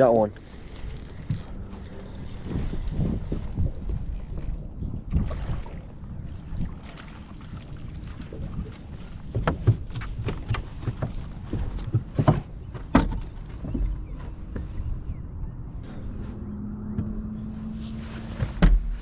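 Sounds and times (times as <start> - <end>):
knocks and clatter on a boat: 0.3 - 16.2, 16.8 - 17.3, 18.2 - 19.0
low rumble: 14.0 - 18.9.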